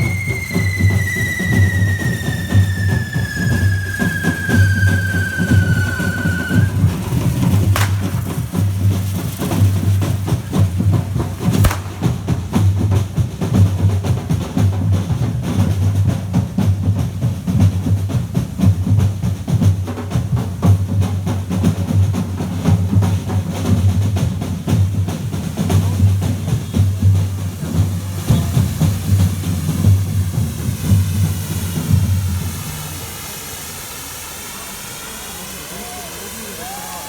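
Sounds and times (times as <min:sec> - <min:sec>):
percussion music: 0:00.0 - 0:32.0
sharp cracks: 0:05.8 - 0:12.9.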